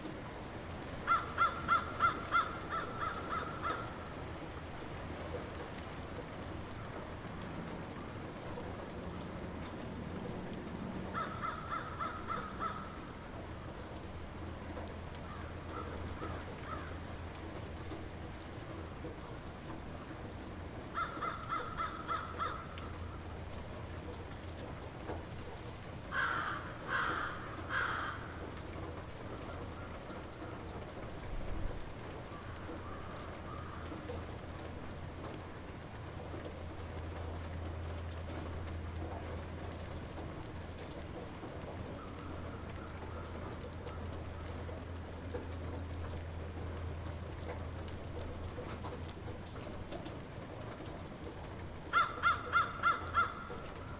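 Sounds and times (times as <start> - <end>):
light rain falling: 0.0 - 53.9
bird calling: 51.9 - 53.9.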